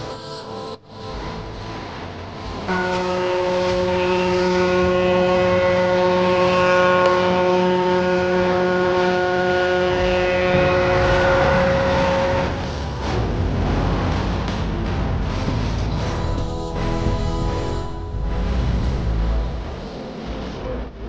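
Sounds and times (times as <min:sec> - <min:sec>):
ferry horn low blast: 0:00.0 - 0:20.8
low rumble: 0:09.5 - 0:21.0.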